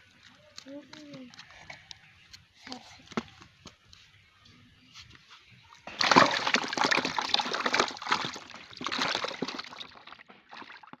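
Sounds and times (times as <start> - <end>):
water splashing and sloshing: 5.8 - 11.0.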